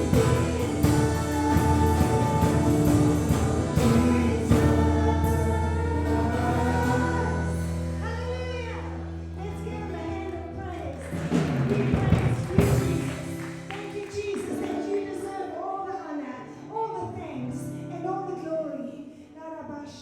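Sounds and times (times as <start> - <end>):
voices singing worship music: 0.0 - 9.0, 11.3 - 15.2
held bass chord: 0.0 - 9.5.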